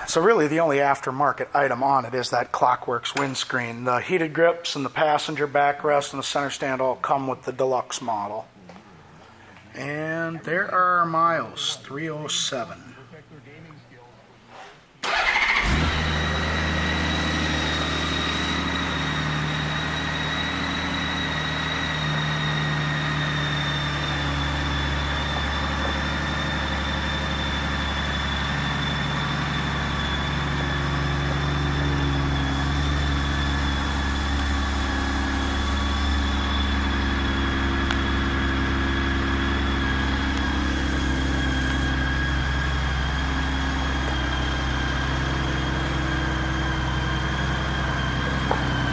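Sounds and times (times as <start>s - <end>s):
motorcycle engine starting and idling: 15.0s - 48.9s
thin high whine: 16.0s - 48.9s.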